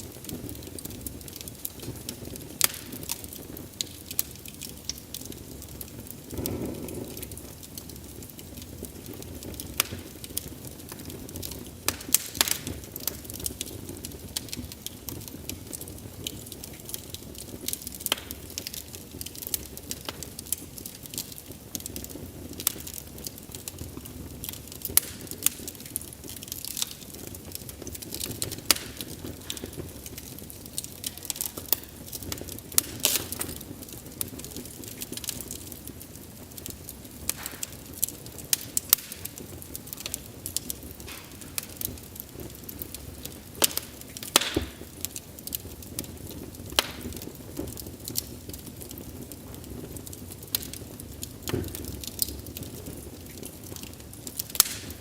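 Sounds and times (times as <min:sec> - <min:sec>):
rush of flame: 0:00.0 - 0:23.5
wood fire crackling and popping: 0:00.0 - 0:55.0.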